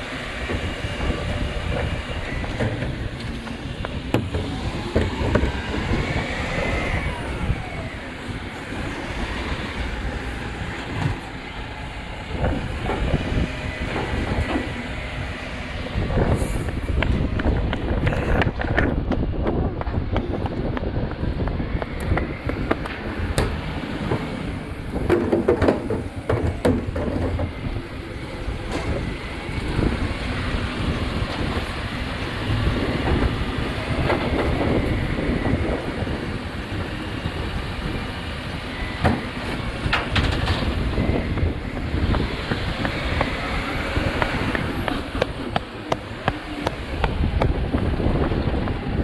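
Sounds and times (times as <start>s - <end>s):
truck engine running: 0.0s - 49.0s
wind buffeting microphone: 0.0s - 49.0s
clanks and knocks: 0.4s - 6.0s, 22.1s - 27.7s, 39.0s - 40.8s.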